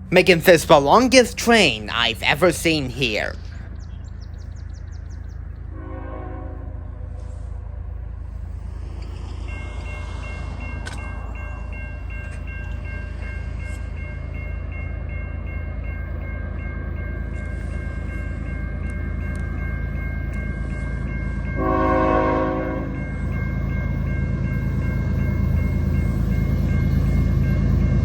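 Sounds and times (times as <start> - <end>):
freight train rumble: 0.0 - 28.0
train air horn blast: 5.7 - 7.4, 21.6 - 23.0.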